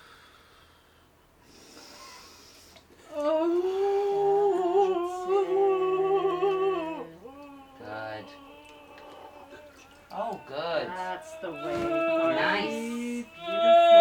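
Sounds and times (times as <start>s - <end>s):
woman breathing: 0.0s - 4.2s
woman moaning low: 3.1s - 14.0s.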